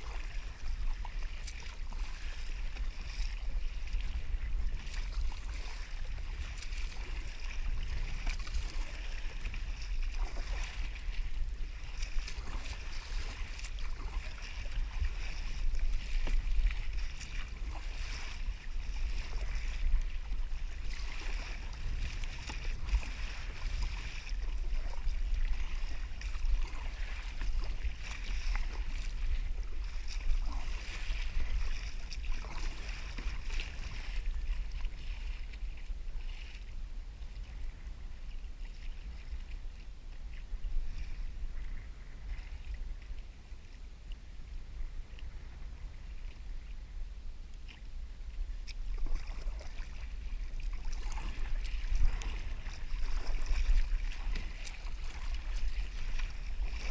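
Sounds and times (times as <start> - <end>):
water lapping and splashing: 0.0 - 56.9
wind on microphone: 0.0 - 56.9.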